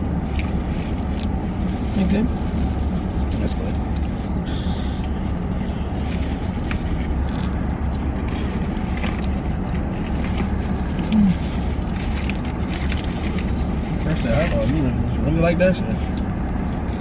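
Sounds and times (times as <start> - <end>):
car engine low rumble: 0.0 - 17.0
eating clicks and rustles: 5.0 - 15.0.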